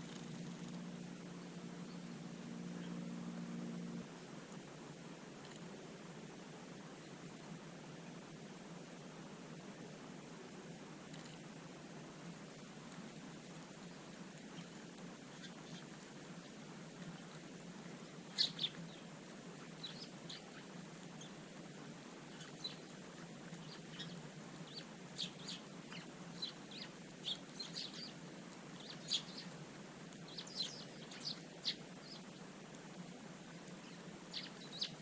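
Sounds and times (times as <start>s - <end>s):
small birds chirping: 12.3s - 32.6s, 33.5s - 35.0s.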